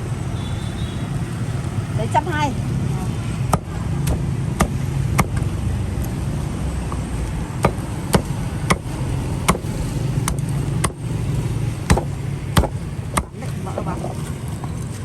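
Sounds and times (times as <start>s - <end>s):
street traffic hum: 0.0s - 15.0s
cleaver chopping meat on board: 3.5s - 5.4s, 7.6s - 11.0s, 11.9s - 13.5s.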